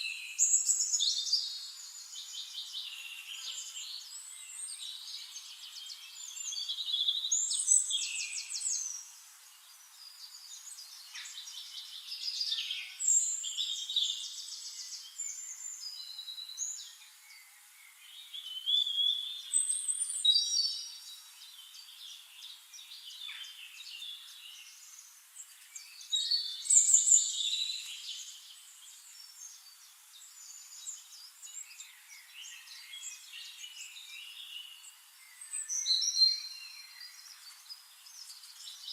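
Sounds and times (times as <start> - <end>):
forest birds singing: 0.0 - 38.9.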